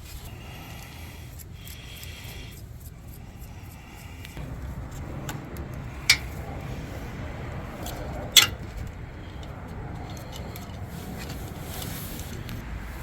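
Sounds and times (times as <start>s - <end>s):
low rumble: 4.4s - 11.1s.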